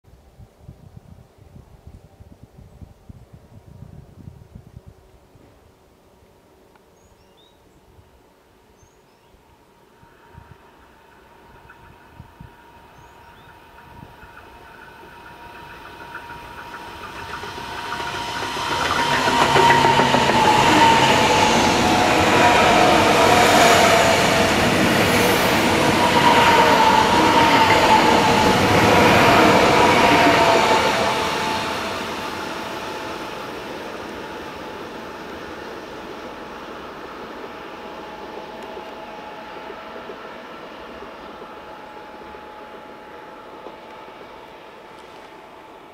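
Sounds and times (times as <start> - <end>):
high-speed train passing: 9.4 - 45.9
steady whine: 9.8 - 45.9.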